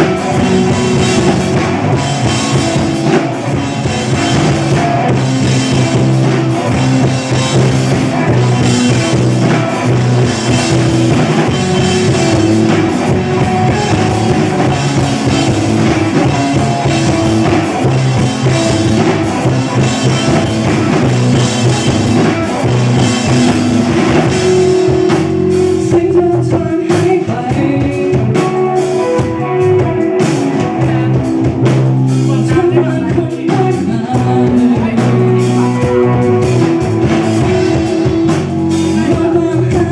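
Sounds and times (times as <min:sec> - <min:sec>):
rock band playing live: 0:00.0 - 0:39.9
person singing: 0:24.2 - 0:39.9.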